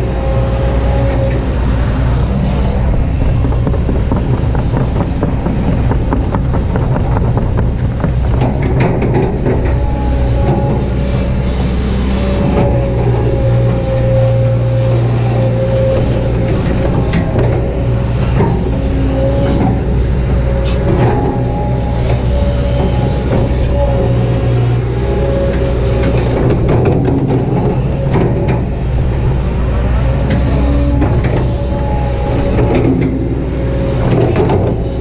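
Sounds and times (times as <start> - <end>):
excavator diesel engine: 0.0 - 35.0
hydraulic whine: 0.0 - 35.0
metal clanks and scrapes: 8.3 - 29.2, 30.0 - 35.0.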